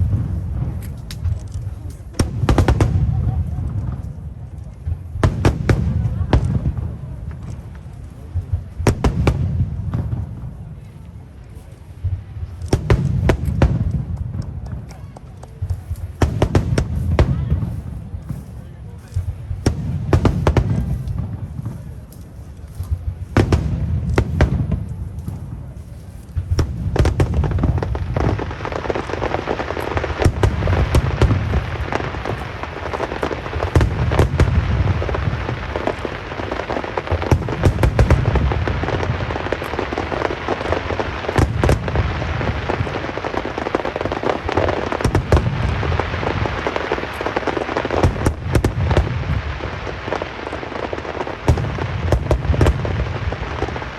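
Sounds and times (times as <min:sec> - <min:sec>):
firework shells booming: 0:00.0 - 0:10.9, 0:12.0 - 0:53.9
sharp firework cracks: 0:00.0 - 0:11.0, 0:11.6 - 0:53.9
crackling hiss of fireworks: 0:00.0 - 0:53.9.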